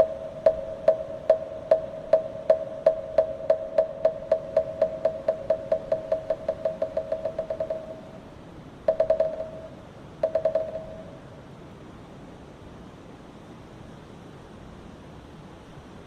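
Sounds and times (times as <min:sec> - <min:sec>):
wooden fish drum struck: 0:00.0 - 0:08.1, 0:08.9 - 0:11.1
steady hiss: 0:00.0 - 0:16.0.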